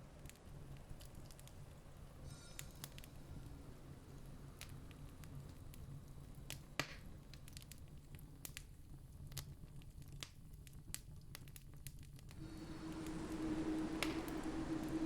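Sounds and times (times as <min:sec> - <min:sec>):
campfire crackling and popping: 0:00.0 - 0:15.0
low steady hum: 0:12.4 - 0:15.0
rising rush of noise: 0:12.4 - 0:15.0
steady low tone: 0:12.4 - 0:15.0.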